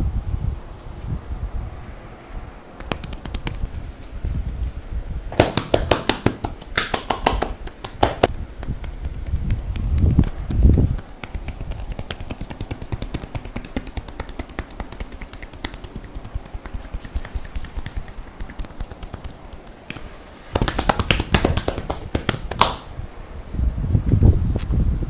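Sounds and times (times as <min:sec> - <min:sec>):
hands tapping and rubbing skin: 0:02.8 - 0:03.7, 0:05.3 - 0:22.9
dull thumps on back: 0:05.3 - 0:22.9.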